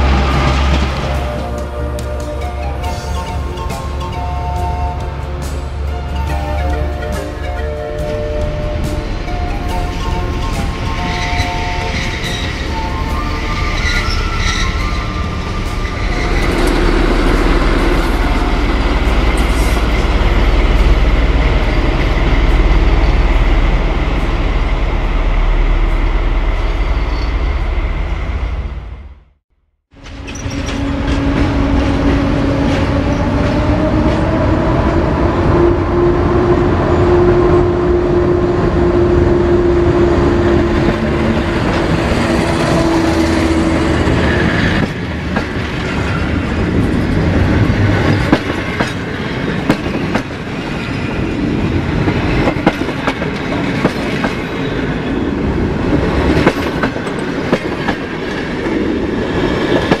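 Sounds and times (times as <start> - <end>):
electric locomotive whine: 0.0 - 60.0
wheels clacking over rail joints: 39.8 - 60.0.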